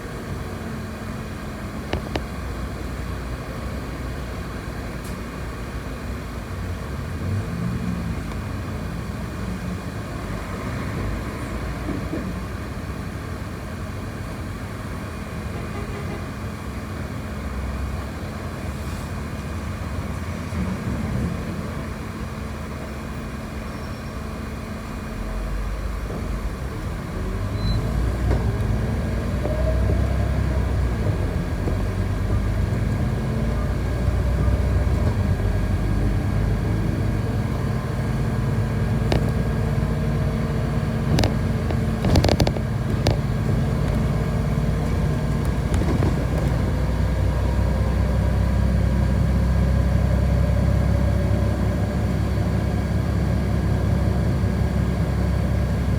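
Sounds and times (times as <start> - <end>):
bus engine and road rumble: 0.0 - 55.9
sharp clicks or rattles: 41.1 - 44.0.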